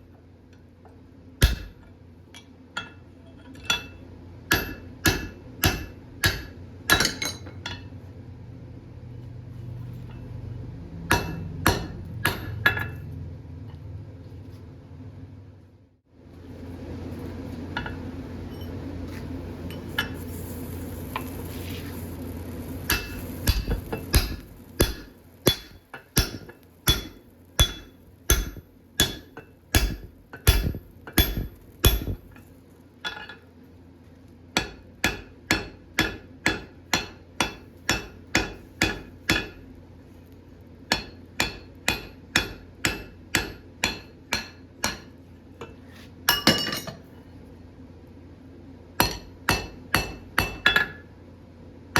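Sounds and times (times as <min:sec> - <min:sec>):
steady hum: 0:00.0 - 0:51.9
hammer clanking on anvil: 0:22.9 - 0:32.2.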